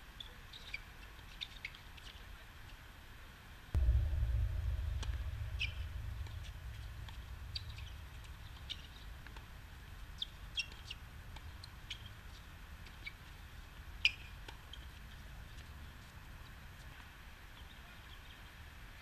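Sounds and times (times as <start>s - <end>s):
sudden knock: 3.8s - 9.2s
loud low rumble: 3.8s - 11.8s.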